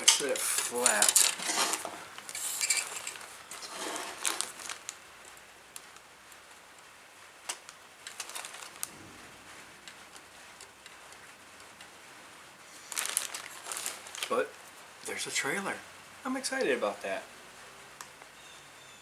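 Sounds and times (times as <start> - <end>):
plastic crinkling rustles: 0.0 - 11.9, 12.6 - 15.6.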